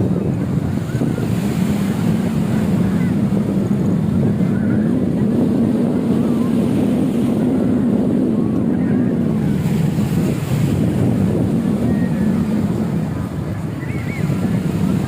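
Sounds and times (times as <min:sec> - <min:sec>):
sea surf on beach: 0:00.0 - 0:15.0
wind buffeting microphone: 0:00.0 - 0:15.0.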